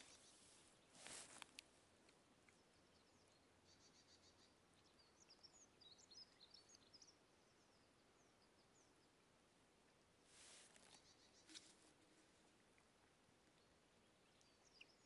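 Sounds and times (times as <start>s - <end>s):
soft rustle of movement: 0.0s - 2.2s, 10.2s - 12.9s
faint songbird chirps: 0.0s - 15.0s.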